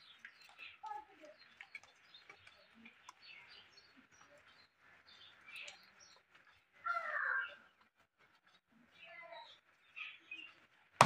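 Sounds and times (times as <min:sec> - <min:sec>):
faint bird chirps: 0:00.0 - 0:07.9, 0:08.5 - 0:10.8.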